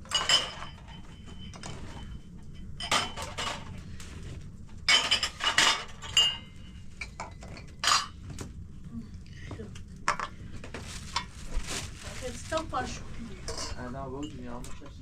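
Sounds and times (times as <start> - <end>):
dishes clattering: 0.0 - 3.8, 4.8 - 8.4, 10.1 - 11.3, 13.4 - 15.0.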